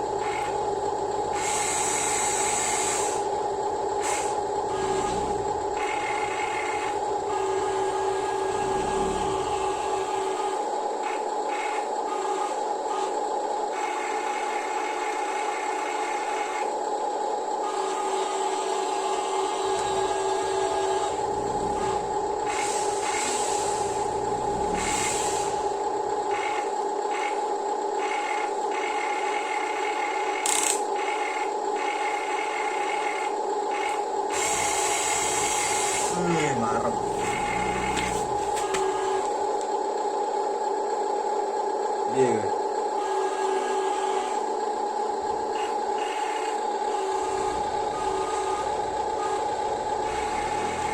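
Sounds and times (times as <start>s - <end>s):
small electric motors whining: 0.0s - 39.8s, 42.1s - 50.9s.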